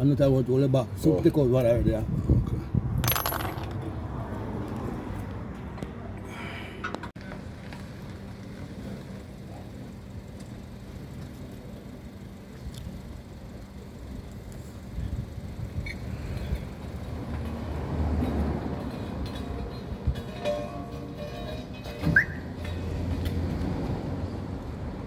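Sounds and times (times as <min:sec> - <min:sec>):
motor vehicle rumble: 0:00.8 - 0:25.0.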